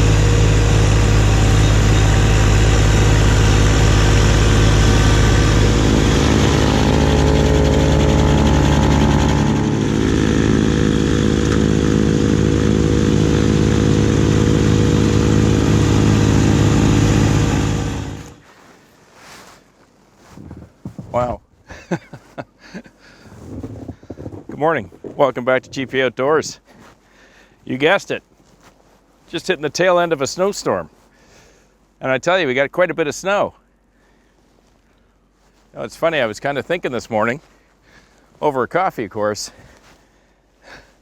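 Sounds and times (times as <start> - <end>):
tractor diesel engine running: 0.0 - 18.5.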